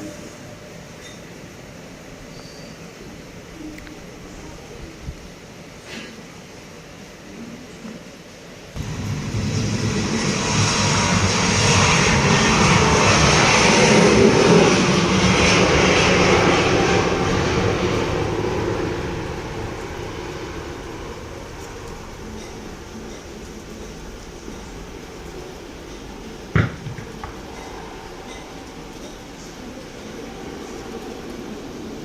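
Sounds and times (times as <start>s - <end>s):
jet engine roar at takeoff: 8.6s - 32.0s.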